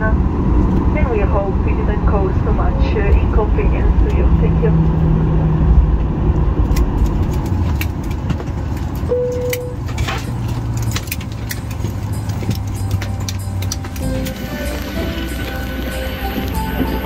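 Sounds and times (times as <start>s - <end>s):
low cabin hum: 0.0s - 17.0s
clicks and rattles: 6.7s - 15.6s
short single tone: 9.1s - 9.8s.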